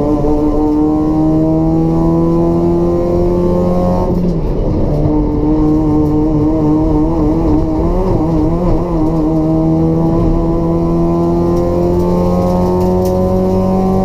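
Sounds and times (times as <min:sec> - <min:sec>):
race car engine under load: 0:00.0 - 0:14.0.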